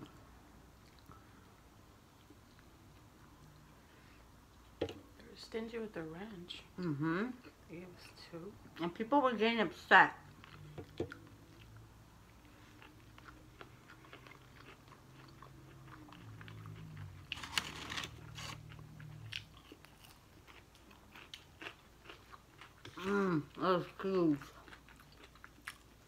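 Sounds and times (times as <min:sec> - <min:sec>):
chewing crunches and mouth clicks: 0:10.3 - 0:26.0.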